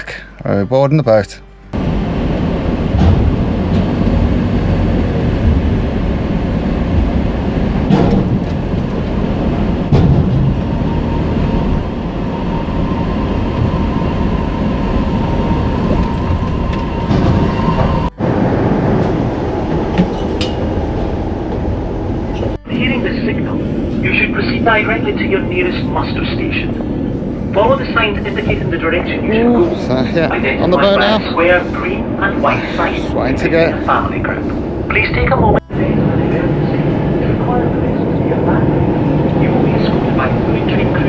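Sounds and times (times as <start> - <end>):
engines and machinery rumbling: 0.0 - 41.0
knocks and clanks: 1.7 - 11.0, 15.8 - 21.7.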